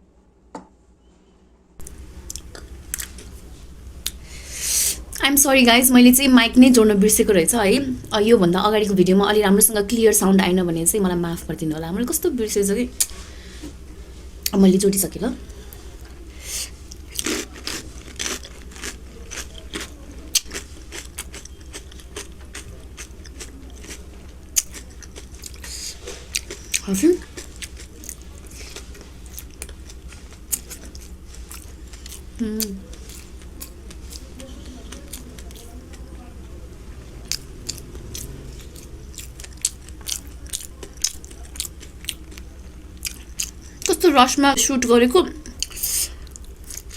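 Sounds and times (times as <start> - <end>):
person chewing and crunching food: 1.8 - 3.4, 16.0 - 36.2, 37.2 - 43.9, 45.5 - 46.9.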